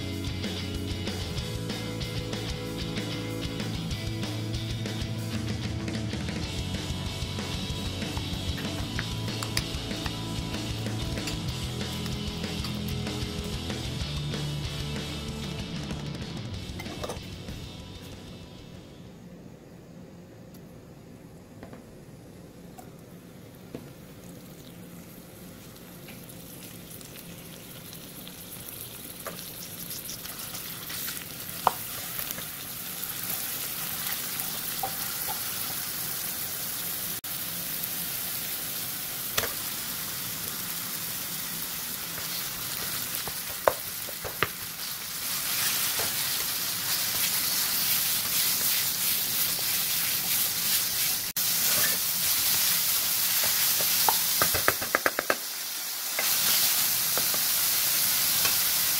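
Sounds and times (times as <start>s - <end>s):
meat frying: 6.2s - 15.7s, 23.9s - 58.9s
garlic sizzling in oil: 24.1s - 58.9s
wooden spatula scraping: 45.3s - 52.1s
spoon tapping a pan: 53.4s - 55.4s.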